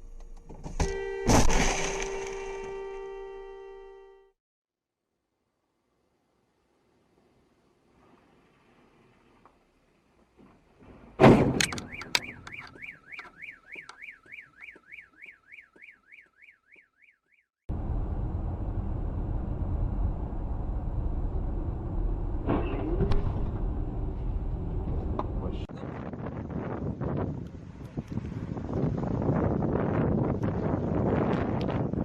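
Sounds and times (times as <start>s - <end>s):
car alarm warbling: 11.6s - 17.5s
moving car road rumble: 17.7s - 32.0s.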